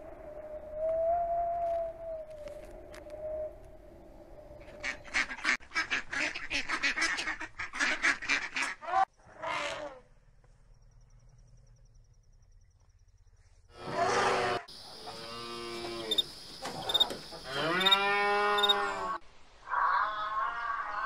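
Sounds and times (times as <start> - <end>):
waterfowl calling: 14.7 - 19.2.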